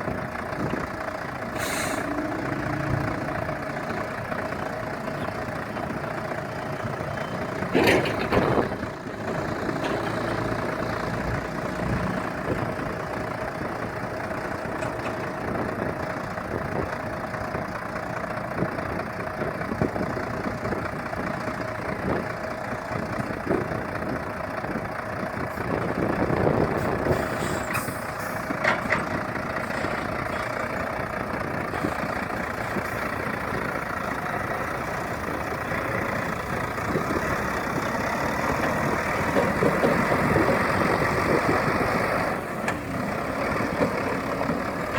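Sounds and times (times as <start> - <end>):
truck diesel engine running: 0.0 - 44.9
short sharp hiss: 1.6 - 2.0.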